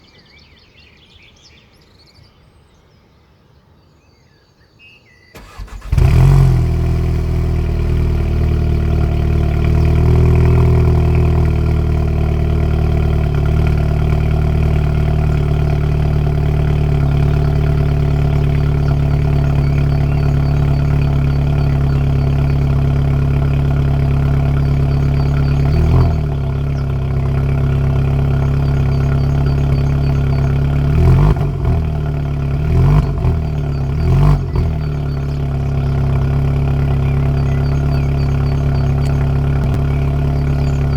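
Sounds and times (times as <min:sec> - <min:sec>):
starter motor cranking: 0:05.4 - 0:07.6
car engine revving and idling: 0:05.4 - 0:40.9.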